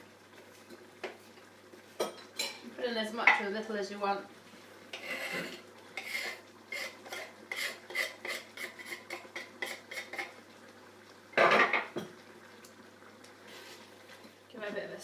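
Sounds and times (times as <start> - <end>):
metal utensil scraping a pan: 5.0 - 10.3.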